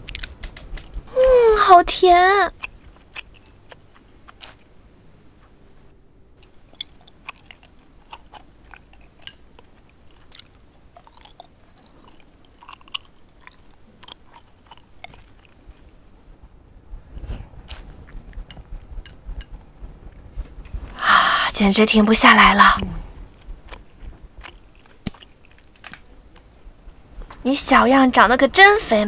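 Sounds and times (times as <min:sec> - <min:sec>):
chewing raw fish: 0:00.0 - 0:01.1, 0:02.5 - 0:04.7, 0:06.4 - 0:16.0, 0:23.3 - 0:26.0
wet mouth clicks and smacks: 0:00.0 - 0:01.1
low rumble: 0:16.2 - 0:24.6.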